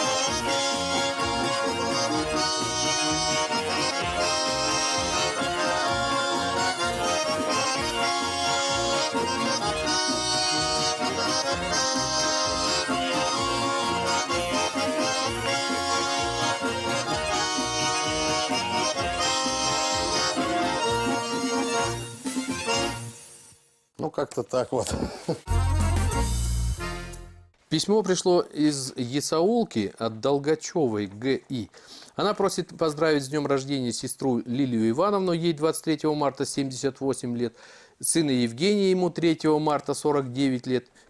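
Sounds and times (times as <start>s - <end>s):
rhythmic bass beat: 0.0s - 23.0s, 25.5s - 27.4s
accordion folk music: 0.0s - 23.6s, 25.4s - 27.6s.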